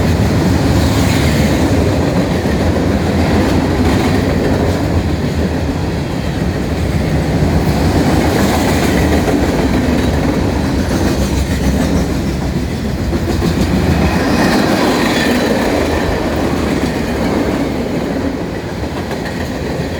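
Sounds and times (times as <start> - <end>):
steel wheels on rail: 0.0 - 19.9.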